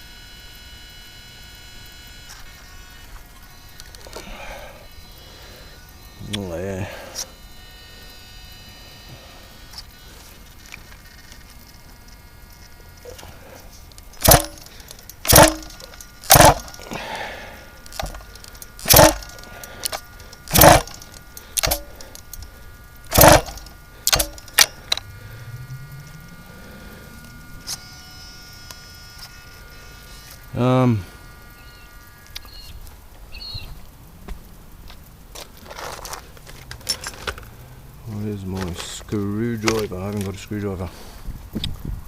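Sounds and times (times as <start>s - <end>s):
engine pull-start cord yanked: 14.1s - 17.2s, 17.8s - 22.5s, 23.1s - 25.1s.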